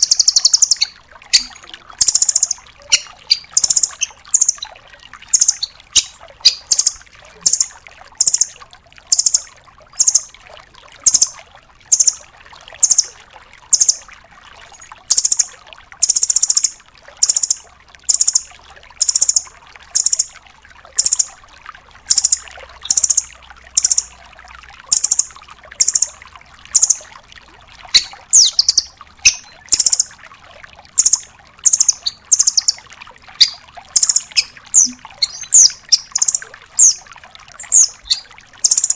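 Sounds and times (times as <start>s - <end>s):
bird calling high notes: 0.0s - 4.7s, 5.3s - 8.5s, 27.9s - 30.1s, 31.0s - 32.8s, 33.4s - 37.0s, 37.6s - 38.9s.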